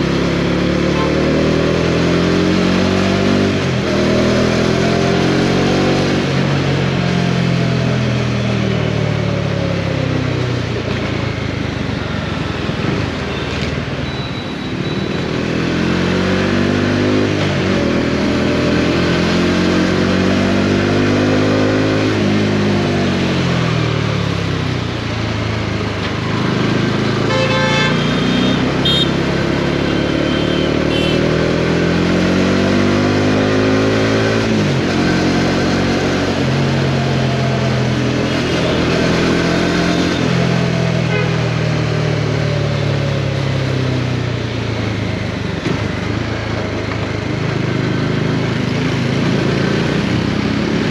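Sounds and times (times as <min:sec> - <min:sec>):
motorcycle engine revving: 0:00.0 - 0:14.0, 0:14.6 - 0:50.9
wind and road noise: 0:00.0 - 0:50.9
vehicle horn tooting: 0:27.2 - 0:29.2, 0:29.9 - 0:31.3, 0:41.0 - 0:41.5.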